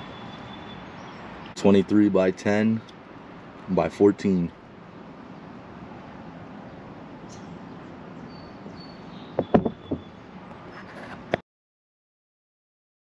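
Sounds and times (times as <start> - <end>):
steady background hiss: 0.0 - 11.4
sharp knocks or clicks: 9.4 - 10.1.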